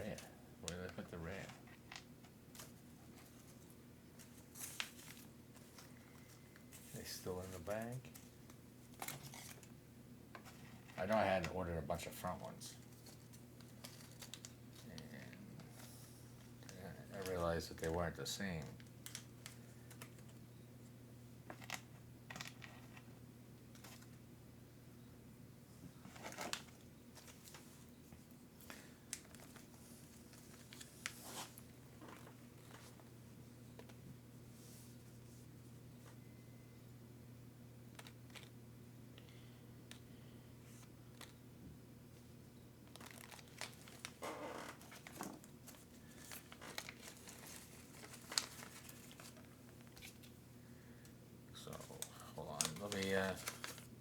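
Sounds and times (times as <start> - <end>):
steady low hum: 0.0 - 54.0
packaging rustling: 12.8 - 15.1, 28.6 - 33.0, 42.8 - 50.4, 51.7 - 54.0
plastic bags crinkling: 28.7 - 33.0, 42.8 - 50.4, 51.6 - 54.0.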